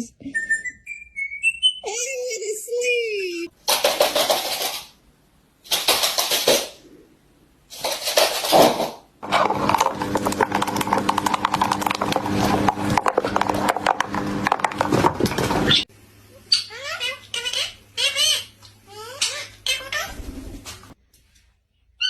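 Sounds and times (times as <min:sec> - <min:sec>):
parrot clicking chatter: 0:03.5 - 0:05.0, 0:05.6 - 0:06.8, 0:15.6 - 0:20.1
parrot harsh calls: 0:15.7 - 0:20.3.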